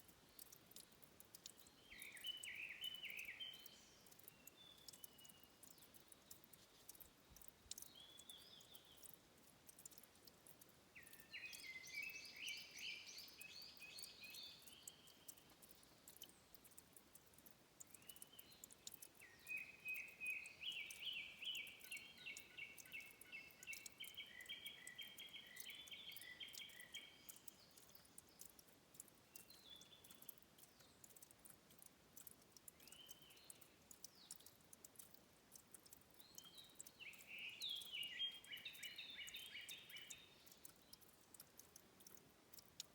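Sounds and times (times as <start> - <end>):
songbird singing: 0.0 - 42.9
trickling dripping water: 0.0 - 42.9.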